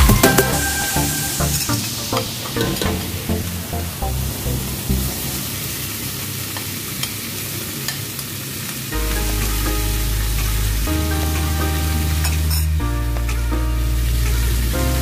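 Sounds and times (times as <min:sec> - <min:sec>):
background music with bass: 0:00.0 - 0:05.3, 0:09.0 - 0:15.0
garlic and chicken sizzling in a pan: 0:05.8 - 0:15.0.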